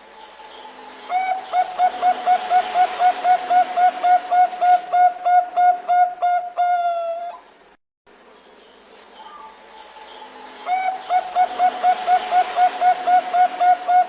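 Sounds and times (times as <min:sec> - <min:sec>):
dove cooing: 0:01.1 - 0:07.4, 0:10.6 - 0:14.0.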